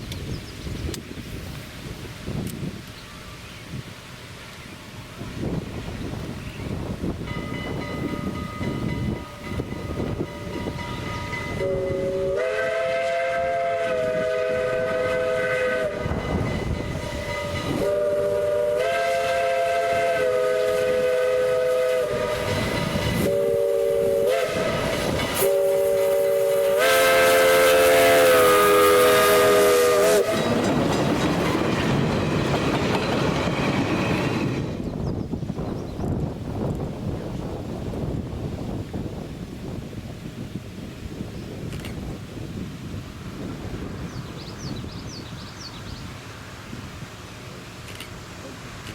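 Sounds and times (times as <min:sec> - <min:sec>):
rushing hiss of train: 0:00.0 - 0:48.9
steam whistle blasts: 0:09.1 - 0:30.8.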